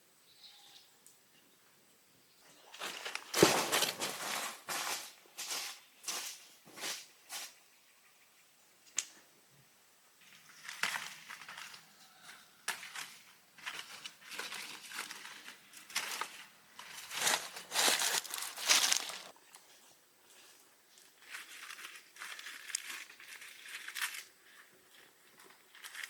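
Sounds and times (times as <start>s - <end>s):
rustling and crinkling: 2.5s - 7.6s, 10.2s - 26.0s.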